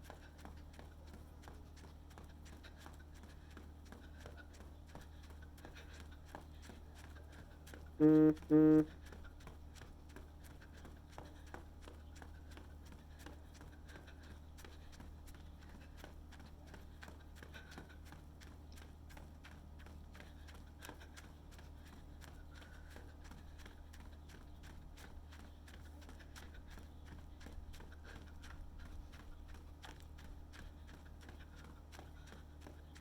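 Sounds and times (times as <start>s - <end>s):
horn-like honks: 8.0s - 8.9s.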